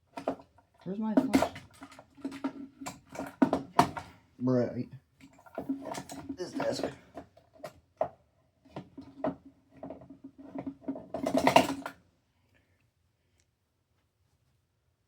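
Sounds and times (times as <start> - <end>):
objects knocking and scraping on desk: 1.1 - 4.2, 5.2 - 12.0.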